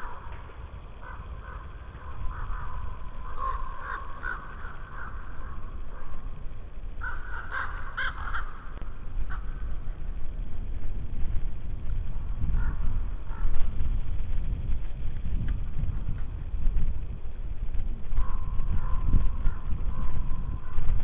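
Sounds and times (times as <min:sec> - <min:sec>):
low wind rumble: 0:00.0 - 0:21.0
birds calling: 0:01.0 - 0:06.1, 0:07.0 - 0:09.6.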